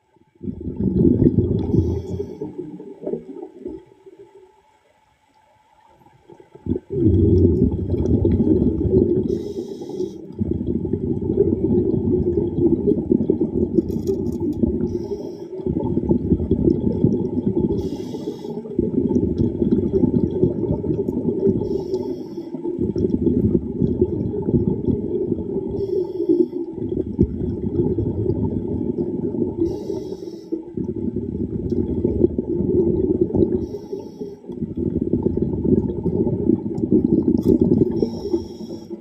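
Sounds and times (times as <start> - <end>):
bubbling exhaled air: 0.4 - 3.9, 6.6 - 39.0
hissing inhale through regulator: 1.6 - 2.7, 9.1 - 10.9, 14.7 - 15.9, 17.6 - 19.0, 21.4 - 23.2, 25.6 - 26.8, 29.6 - 30.9, 33.4 - 35.1, 37.8 - 39.0.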